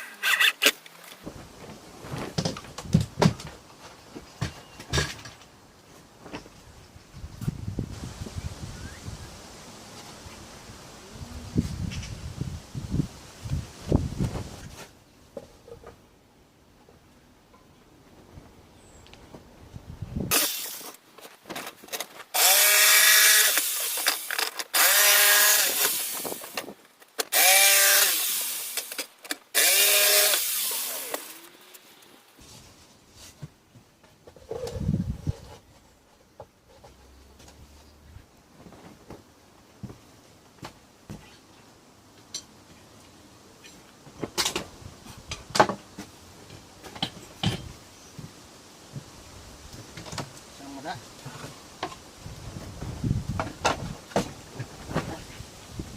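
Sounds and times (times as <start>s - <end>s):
power tool whining: 20.3s - 21.0s, 22.4s - 26.6s, 27.2s - 32.0s.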